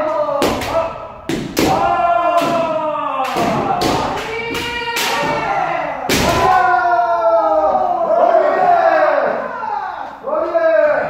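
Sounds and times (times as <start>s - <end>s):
people shouting kiai: 0.0s - 11.0s
bamboo sword strikes: 0.4s - 5.5s, 6.1s - 6.6s.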